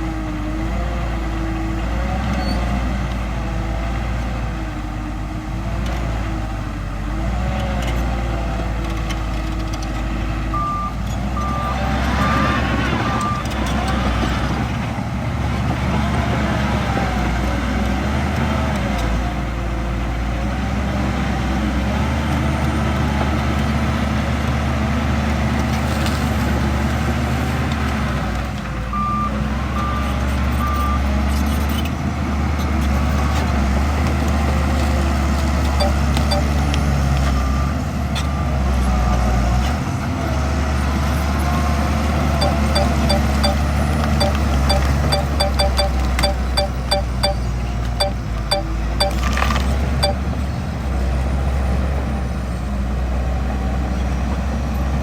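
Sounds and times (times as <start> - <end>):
reversing alarm beeps: 35.7 - 36.6, 42.4 - 49.3.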